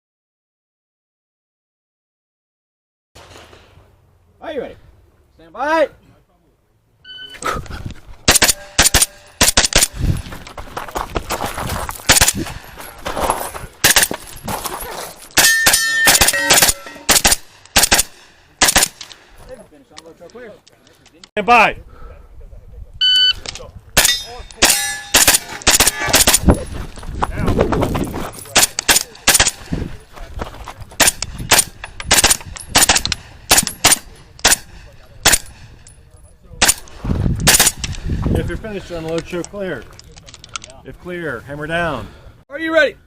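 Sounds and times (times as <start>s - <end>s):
carbine gunshots: 8.3s - 10.0s, 12.1s - 12.5s, 13.8s - 14.2s, 15.4s - 19.3s, 24.0s - 26.6s, 28.5s - 29.8s, 31.0s - 35.8s, 36.6s - 38.0s
rifle firing rapid shots: 8.3s - 10.0s, 12.1s - 12.4s, 13.8s - 14.2s, 15.4s - 19.1s, 24.0s - 26.5s, 28.5s - 29.7s, 31.0s - 35.7s, 36.6s - 37.9s
steel targets ringing: 8.4s - 9.4s, 15.4s - 17.2s, 24.0s - 26.3s.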